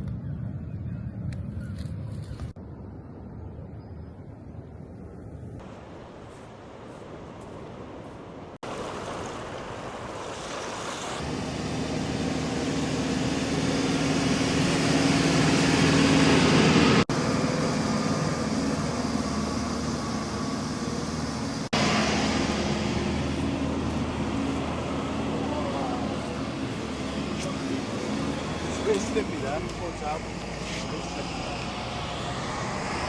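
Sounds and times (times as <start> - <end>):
wind: 0.0 - 33.0
surf: 8.6 - 11.3
steady motor hum: 8.7 - 33.0.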